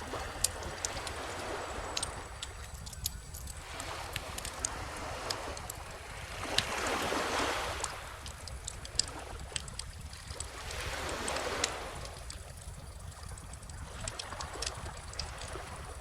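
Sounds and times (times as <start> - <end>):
ocean waves washing in: 0.0 - 2.9
bonfire crackling and popping: 0.0 - 16.0.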